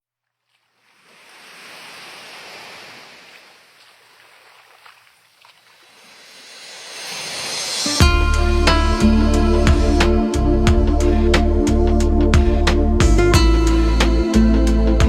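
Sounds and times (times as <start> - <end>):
waves rushing: 0.8 - 11.5.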